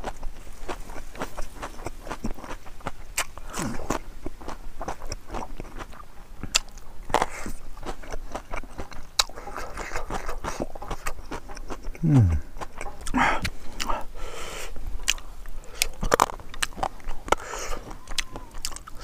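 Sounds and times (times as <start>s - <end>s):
chewing and lip-smacking: 0.0s - 19.0s.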